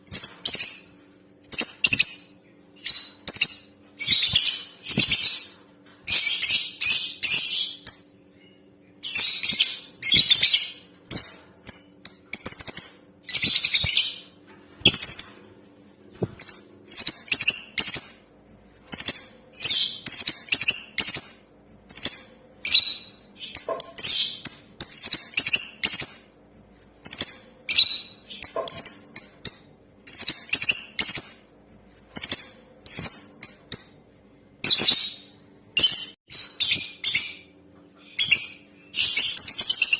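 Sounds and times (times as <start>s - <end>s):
lovebird chirping and trilling: 0.0s - 15.6s, 16.3s - 26.4s, 27.0s - 31.6s, 32.2s - 39.9s.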